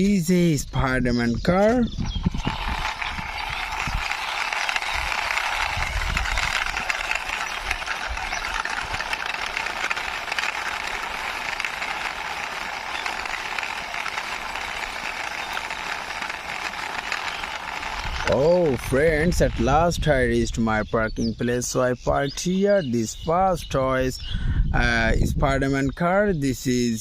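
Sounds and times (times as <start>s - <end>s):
toy car wheels rolling: 1.6s - 20.8s.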